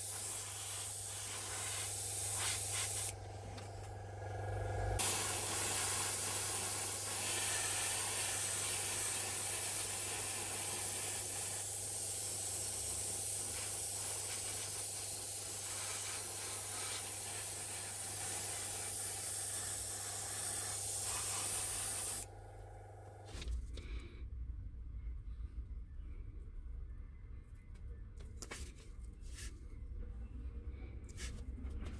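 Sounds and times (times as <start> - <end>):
compressed air spray hissing: 0.0 - 3.8, 4.9 - 22.3
low hum: 0.3 - 10.2.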